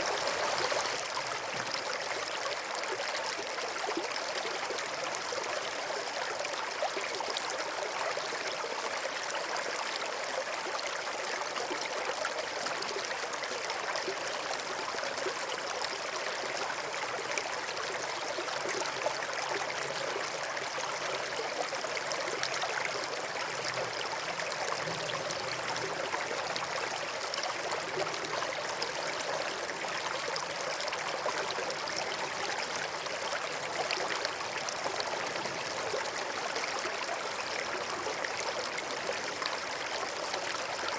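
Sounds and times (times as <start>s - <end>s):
stream flowing over stones: 0.0s - 40.9s.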